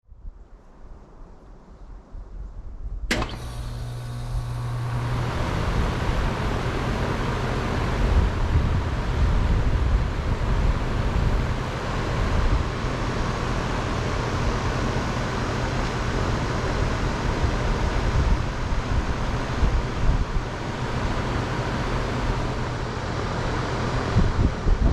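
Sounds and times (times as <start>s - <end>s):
air conditioner relay click: 3.1s - 5.2s
compressor low hum: 3.1s - 24.9s
condenser fan rush of air: 3.1s - 24.9s.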